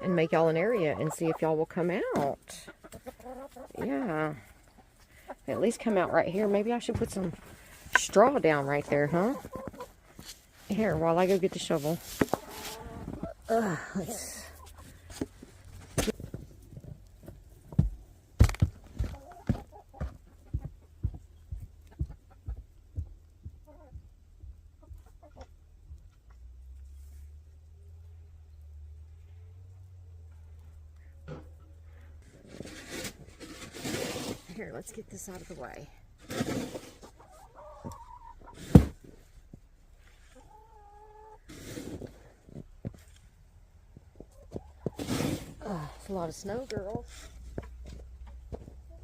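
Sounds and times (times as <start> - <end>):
hens calling: 0.0 - 10.0, 11.2 - 15.0, 37.1 - 38.6
footsteps in snow: 6.2 - 13.3.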